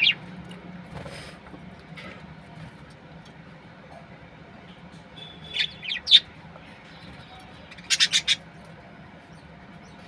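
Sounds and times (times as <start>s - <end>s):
budgerigars chirping: 0.0s - 0.2s, 5.4s - 6.3s, 7.7s - 8.5s.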